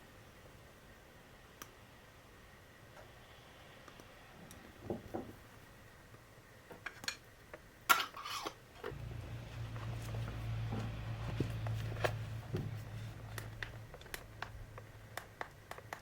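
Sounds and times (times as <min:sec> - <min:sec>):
steady low hum: 0:08.9 - 0:15.8.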